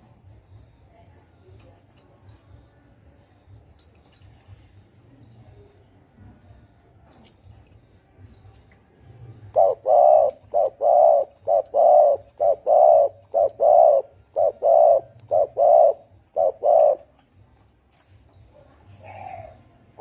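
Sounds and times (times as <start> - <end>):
dove cooing hoarsely: 9.5 - 17.1, 19.0 - 19.6.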